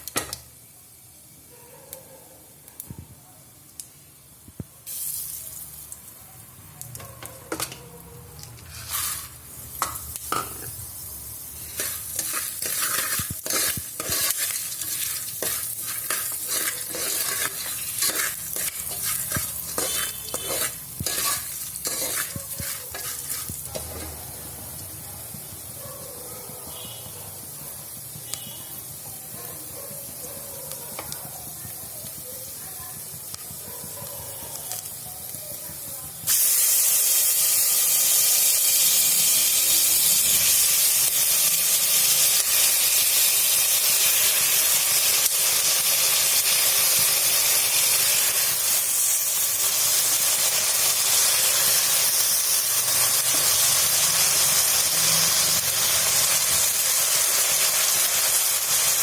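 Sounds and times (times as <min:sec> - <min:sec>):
pressure cooker steam hissing: 0:08.7 - 0:24.3, 0:35.9 - 0:59.0.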